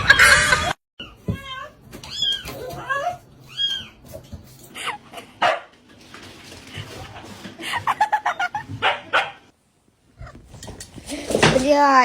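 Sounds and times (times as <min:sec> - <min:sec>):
dog barking and yipping: 0:05.4 - 0:05.7, 0:08.8 - 0:09.5.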